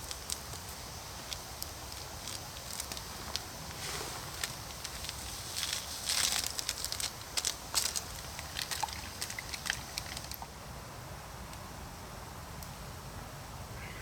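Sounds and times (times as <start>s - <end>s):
campfire crackling and popping: 0.0s - 10.5s.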